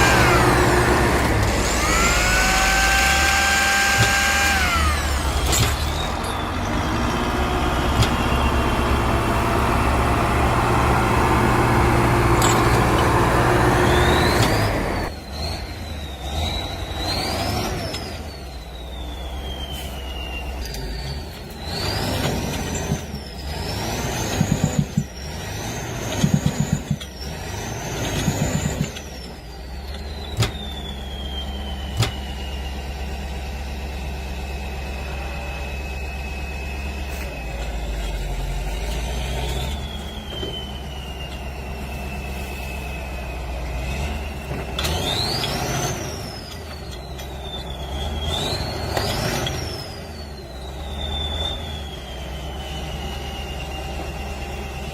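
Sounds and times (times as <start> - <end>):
vehicle siren wailing: 0.0 - 10.4.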